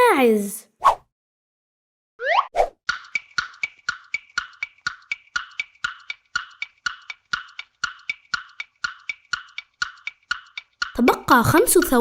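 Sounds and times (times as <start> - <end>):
wood-block-like timer ticks: 2.9 - 12.0.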